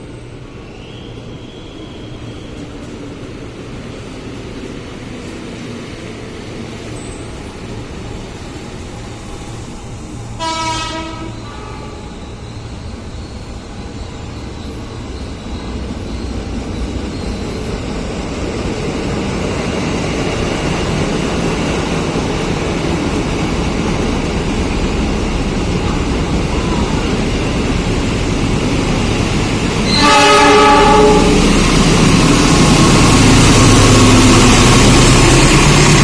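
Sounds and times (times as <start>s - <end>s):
train rumbling: 0.0s - 36.0s
train horn blast: 10.4s - 12.2s, 29.8s - 31.7s.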